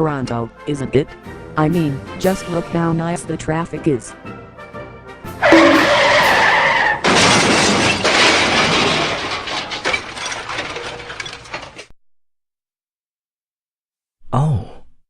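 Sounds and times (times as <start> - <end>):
tyres screeching: 5.4 - 11.7
loud car crash: 5.4 - 11.9.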